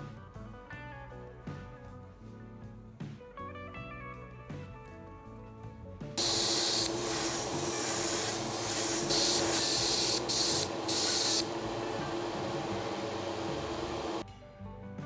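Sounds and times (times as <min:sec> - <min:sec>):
paint spraying hiss: 0:06.2 - 0:14.2
steady hum: 0:06.2 - 0:14.2.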